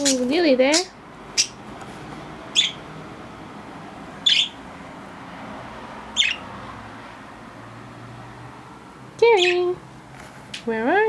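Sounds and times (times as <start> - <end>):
budgerigar chirps: 0.0 - 1.6, 2.5 - 2.8, 4.2 - 4.6, 6.2 - 6.4.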